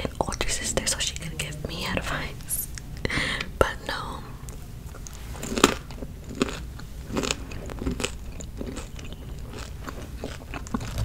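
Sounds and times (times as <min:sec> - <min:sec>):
crisp crunching of chewed food: 0:04.9 - 0:11.0.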